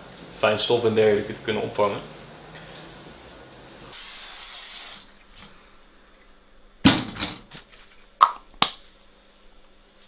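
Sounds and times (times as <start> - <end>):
aerosol can spraying hiss: 3.9 - 5.1.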